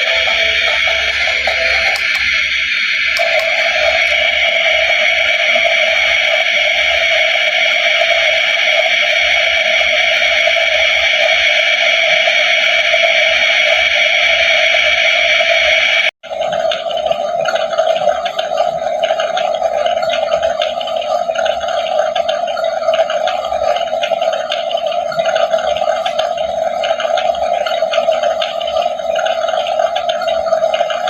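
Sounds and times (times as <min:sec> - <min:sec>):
buzzy crackling electronic hum: 0:00.0 - 0:16.1.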